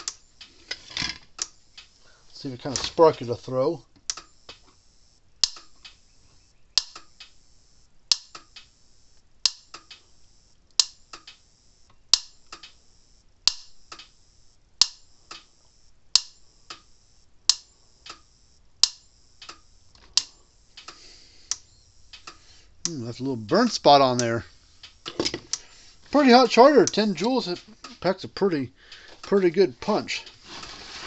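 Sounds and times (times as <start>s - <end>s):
electric fence spark snapping: 0.0s - 2.0s, 4.1s - 4.8s, 5.4s - 6.0s, 6.8s - 7.4s, 8.1s - 10.1s, 10.8s - 11.5s
faint ticks: 4.0s - 23.0s.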